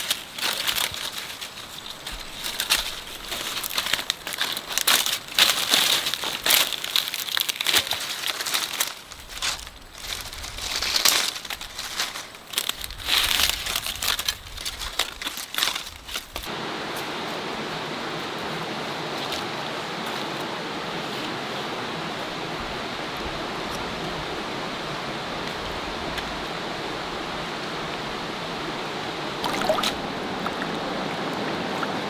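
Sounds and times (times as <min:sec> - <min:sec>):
crinkling and rustling: 0:00.0 - 0:16.5.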